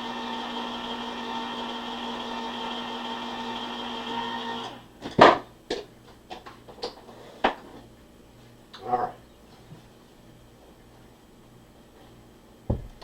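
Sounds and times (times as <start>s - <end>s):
electric can opener running: 0.0s - 4.9s.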